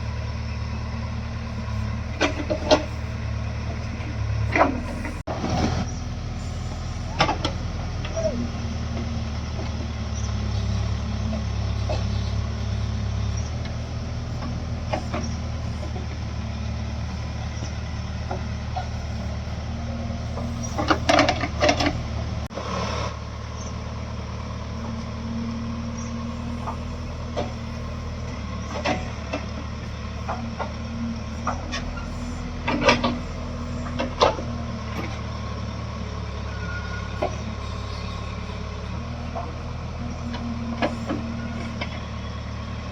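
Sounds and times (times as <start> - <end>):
diesel machinery droning: 0.0 - 42.9
metal clanks and knocks: 20.4 - 22.1.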